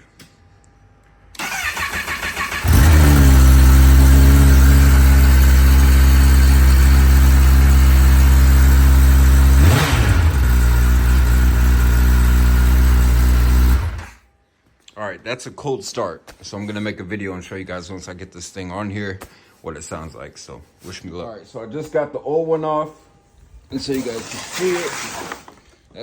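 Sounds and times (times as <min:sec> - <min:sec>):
motorcycle starter cranking: 0:01.4 - 0:14.2
motorcycle engine idling: 0:01.6 - 0:14.2.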